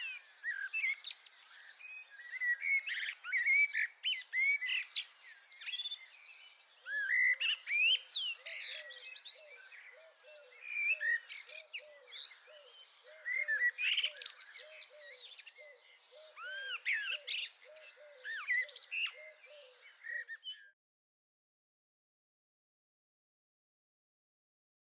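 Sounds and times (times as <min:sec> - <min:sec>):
garden birds chirping: 0:00.0 - 0:20.8.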